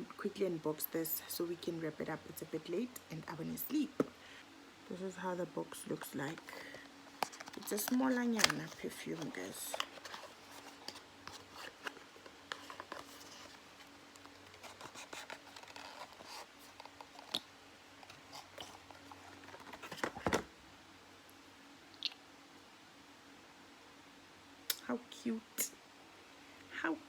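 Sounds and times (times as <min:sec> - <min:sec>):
cardboard box crackling: 0:07.2 - 0:17.4, 0:18.0 - 0:20.5.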